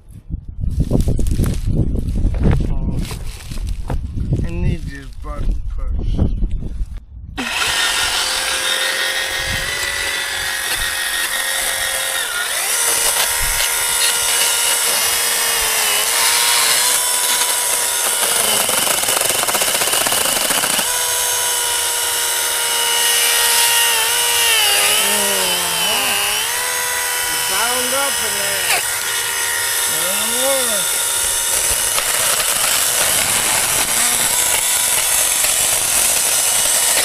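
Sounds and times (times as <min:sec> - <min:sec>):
electric chainsaw cutting brush: 0:07.4 - 0:37.0.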